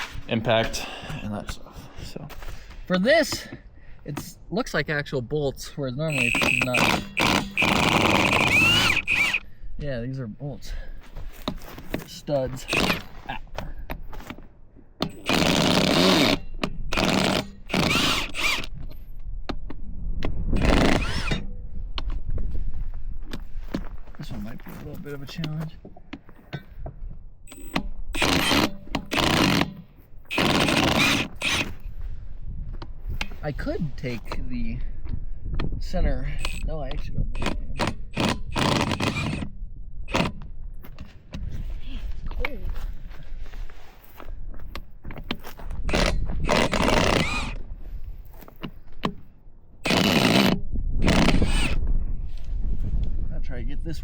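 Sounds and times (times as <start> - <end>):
impact wrench hammering: 6.1 - 9.4, 15.0 - 18.7, 27.5 - 31.8.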